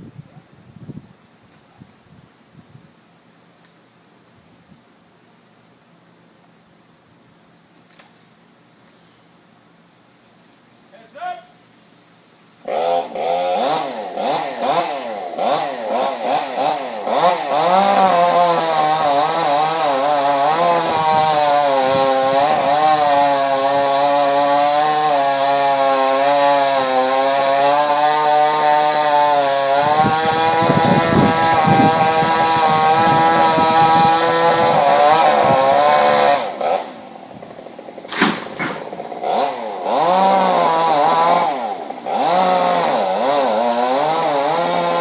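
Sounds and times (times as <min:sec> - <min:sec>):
chainsaw revving and cutting wood: 0:12.6 - 0:45.0.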